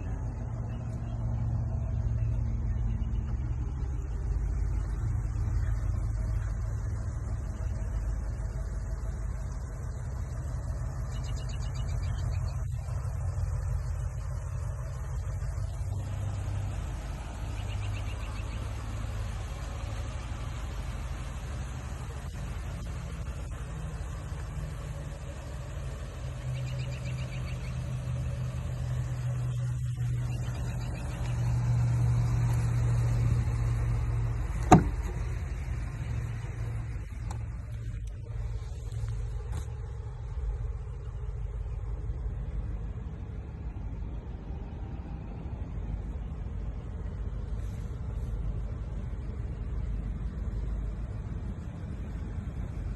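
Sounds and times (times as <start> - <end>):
truck engine rumbling: 0.0 - 52.9.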